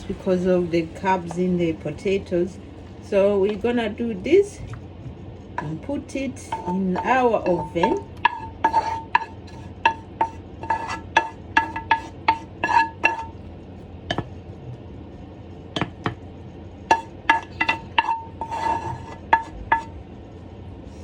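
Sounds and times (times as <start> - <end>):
spoon clinking against pot: 6.5 - 13.3, 16.9 - 19.9.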